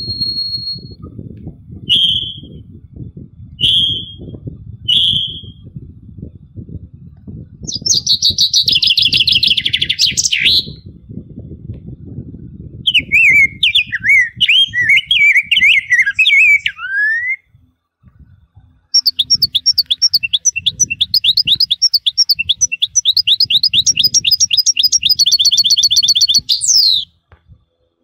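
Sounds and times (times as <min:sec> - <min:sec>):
bird singing whistled notes: 0:00.0 - 0:01.1, 0:01.8 - 0:02.7, 0:03.5 - 0:05.7, 0:07.6 - 0:10.8, 0:12.8 - 0:17.6, 0:18.9 - 0:27.1.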